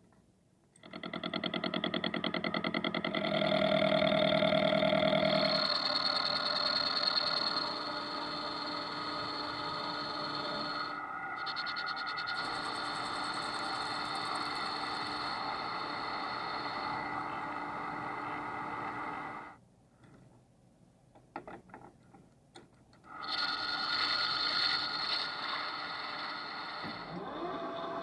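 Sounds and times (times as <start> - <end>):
metalworking machine whining: 2.5 - 19.6, 23.1 - 28.0.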